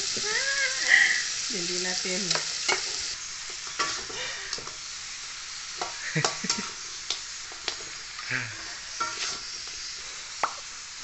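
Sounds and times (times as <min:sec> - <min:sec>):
fish sizzling in hot oil: 0:00.0 - 0:11.0
spatula scraping a pan: 0:03.6 - 0:04.3, 0:08.7 - 0:09.6.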